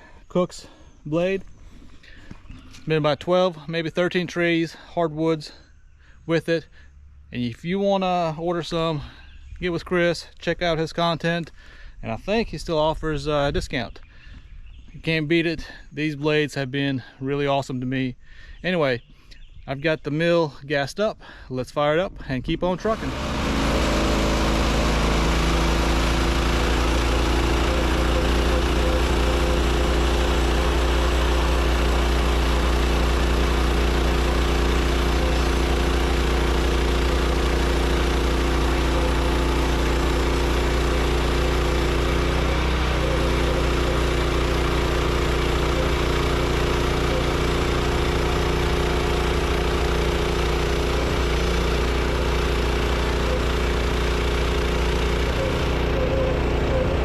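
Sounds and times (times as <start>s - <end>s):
gasoline engine running: 22.6s - 57.0s.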